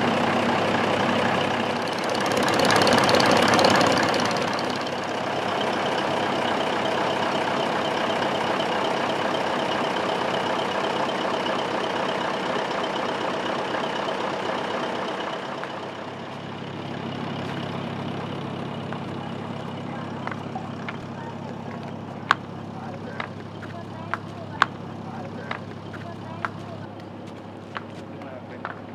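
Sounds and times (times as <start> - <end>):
boat diesel engine roaring: 0.0 - 28.9.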